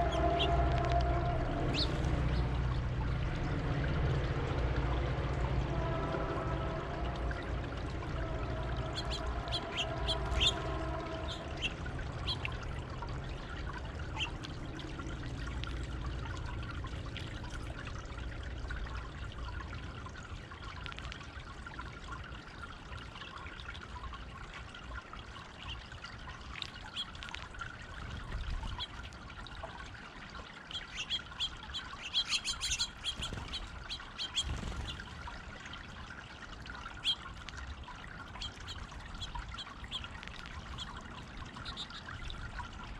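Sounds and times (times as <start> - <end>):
water pouring over fountain: 0.0 - 42.9
small birds chirping: 1.7 - 2.4, 8.9 - 12.6, 13.3 - 14.4, 30.7 - 35.1, 37.0 - 37.4, 38.3 - 42.7.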